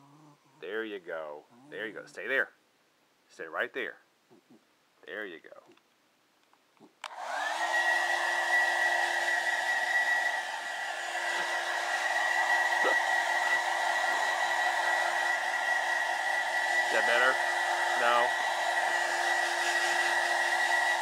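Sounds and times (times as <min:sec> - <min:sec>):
hair dryer whine and blowing air: 0:07.0 - 0:21.0.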